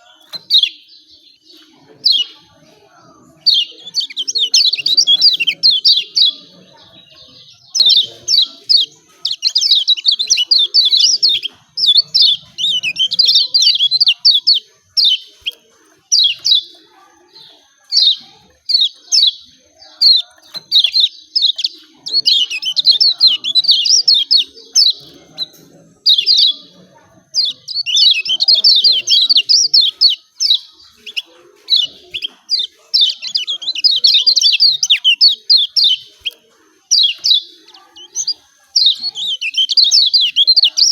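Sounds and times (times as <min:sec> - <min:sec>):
bird giving scratchy chirps: 0:03.2 - 0:40.9.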